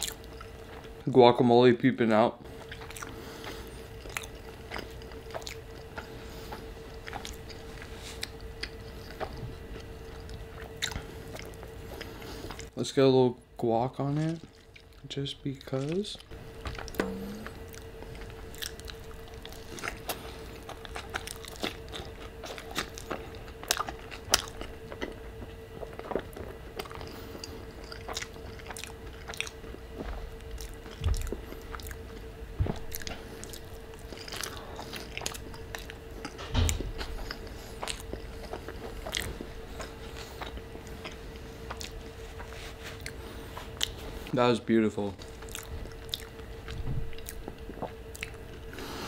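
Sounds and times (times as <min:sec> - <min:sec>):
close chewing with mouth clicks: 0:00.0 - 0:01.0, 0:02.5 - 0:12.7, 0:14.2 - 0:44.3, 0:45.2 - 0:49.0
food crunching: 0:00.0 - 0:01.1, 0:02.4 - 0:12.7, 0:14.0 - 0:44.3, 0:45.1 - 0:49.0
faint steady hum: 0:00.0 - 0:49.0.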